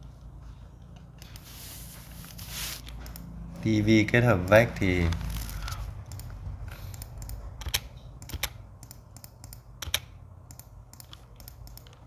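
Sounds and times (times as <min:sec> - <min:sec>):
keyboard and mouse clicks: 0:04.4 - 0:12.0.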